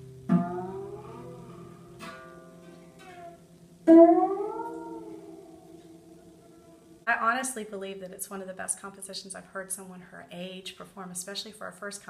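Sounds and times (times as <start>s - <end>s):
harp string gliding in pitch: 0.0s - 7.0s.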